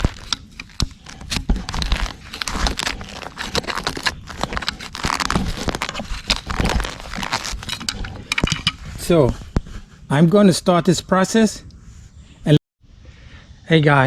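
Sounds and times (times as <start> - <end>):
shovel scraping and lifting dirt: 0.0 - 10.1.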